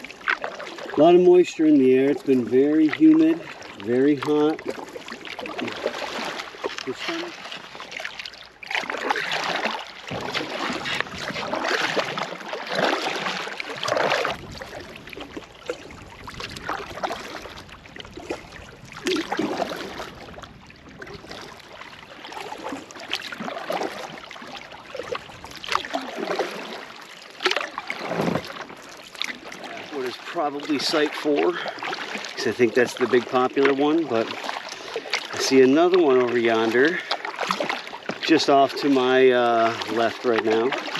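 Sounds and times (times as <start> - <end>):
canoe paddle strokes in water: 0.0 - 40.9.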